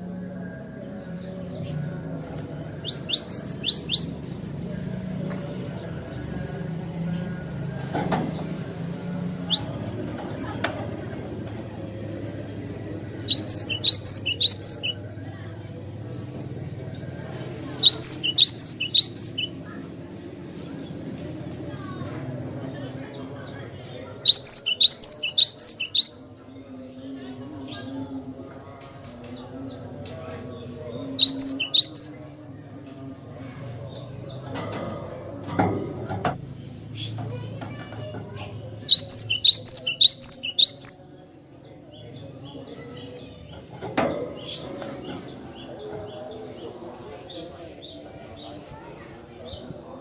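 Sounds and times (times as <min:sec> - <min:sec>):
bird chirping: 0:02.7 - 0:04.4, 0:08.3 - 0:09.9, 0:12.5 - 0:15.0, 0:17.7 - 0:19.6, 0:23.2 - 0:26.2, 0:30.9 - 0:32.2, 0:38.4 - 0:41.2.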